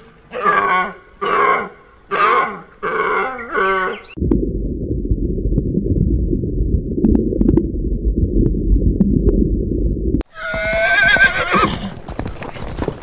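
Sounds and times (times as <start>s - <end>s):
underwater rumble: 4.1s - 10.2s
horse whinnying: 10.2s - 12.0s
hoofbeats of running herd: 10.4s - 13.0s.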